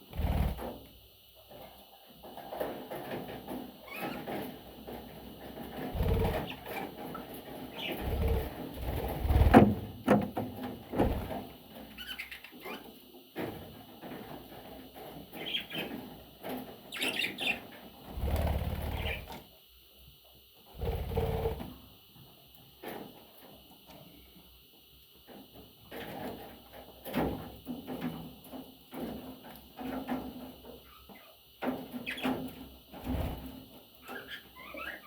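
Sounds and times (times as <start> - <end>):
wing flapping and rustling: 0.0 - 0.9, 2.2 - 12.1, 13.4 - 19.4, 20.7 - 21.8, 31.6 - 33.8.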